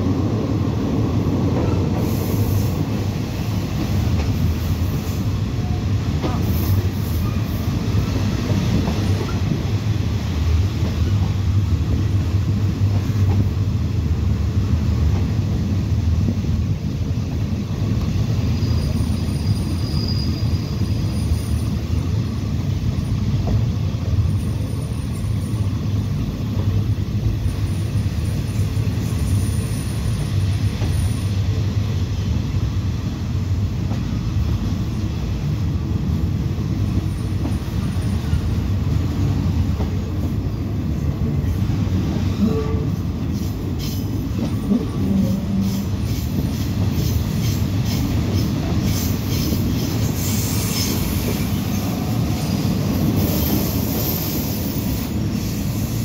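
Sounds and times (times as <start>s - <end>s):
train rumbling along track: 0.0s - 56.0s
faint high squeal: 18.4s - 21.8s.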